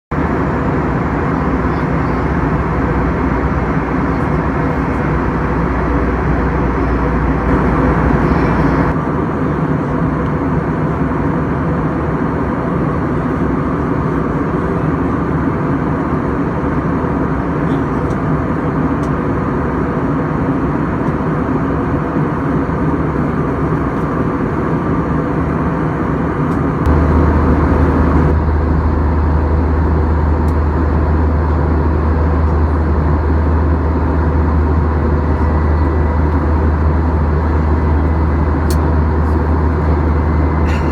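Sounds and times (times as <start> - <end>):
deep rumble: 0.1 - 9.0, 23.0 - 40.9
airliner cabin roar: 0.1 - 40.9
faint steady hums: 0.2 - 9.0, 23.1 - 40.9.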